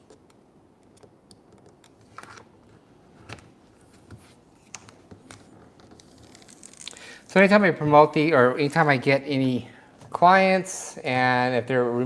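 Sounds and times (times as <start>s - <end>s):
faint clicks of vinyl wrap: 0.0s - 7.2s.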